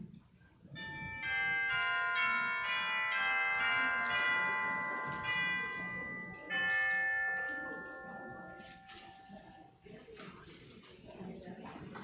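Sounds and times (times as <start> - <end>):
bell-like chimes ringing: 0.8 - 9.8.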